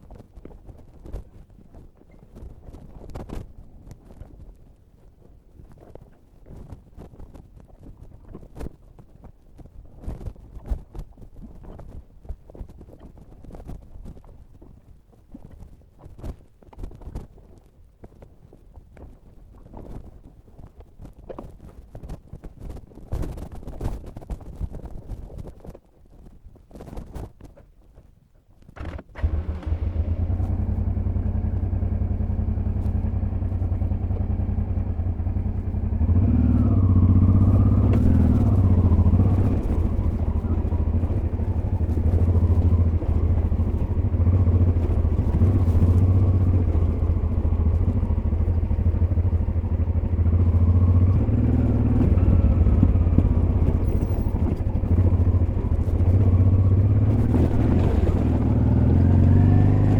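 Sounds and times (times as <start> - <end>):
motorcycle engine running: 28.8 - 59.9.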